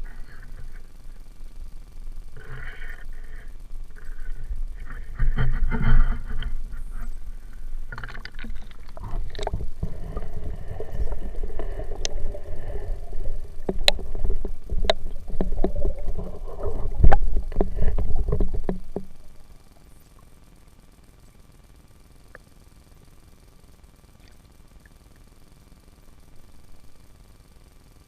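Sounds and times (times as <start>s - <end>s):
low underwater rumble: 0.0s - 20.4s
muffled sloshing water: 4.0s - 19.6s
sharp knocks underwater: 7.9s - 19.2s.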